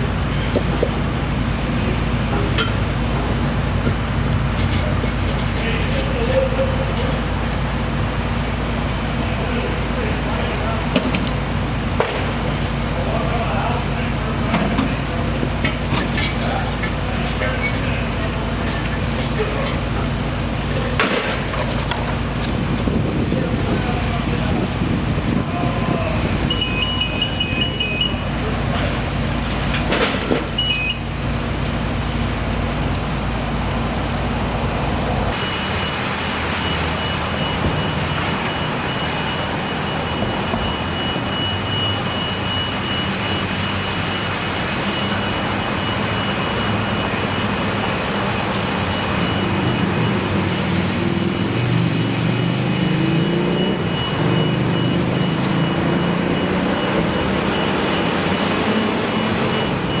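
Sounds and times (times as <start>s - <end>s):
continuous high whine: 0.0s - 60.0s
engine and machinery noise: 0.0s - 60.0s
engine tone rising in pitch: 35.2s - 60.0s.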